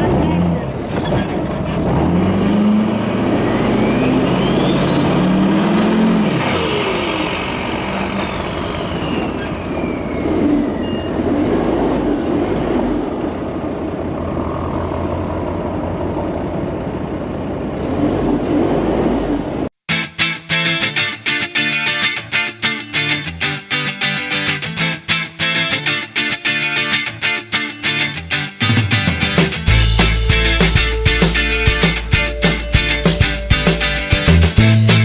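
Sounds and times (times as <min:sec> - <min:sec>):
diesel engine revving: 0:00.0 - 0:19.8
high engine whistle: 0:01.8 - 0:12.6, 0:29.9 - 0:35.0.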